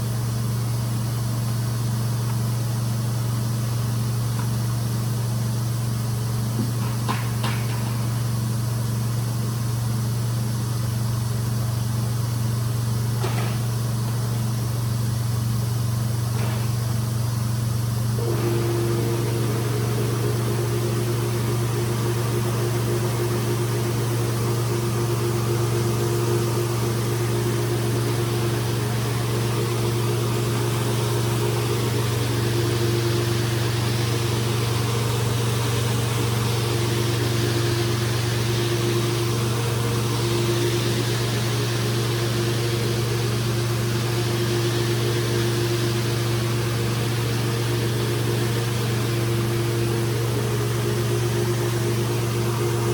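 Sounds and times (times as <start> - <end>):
rug cleaning machine running: 17.7 - 52.9.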